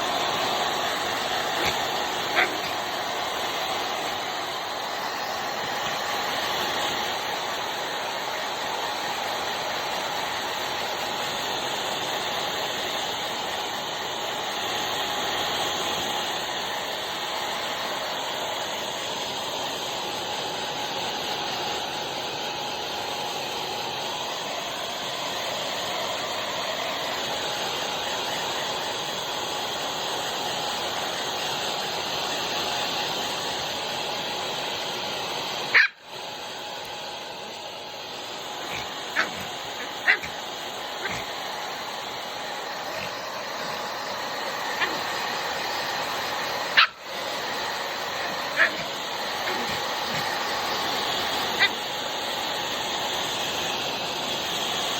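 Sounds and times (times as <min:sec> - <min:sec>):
hair dryer blowing: 0:00.0 - 0:54.9
dog yipping: 0:01.4 - 0:02.9, 0:35.7 - 0:36.1, 0:38.4 - 0:41.4, 0:42.8 - 0:44.0, 0:44.6 - 0:45.4, 0:46.6 - 0:47.2, 0:48.1 - 0:52.0.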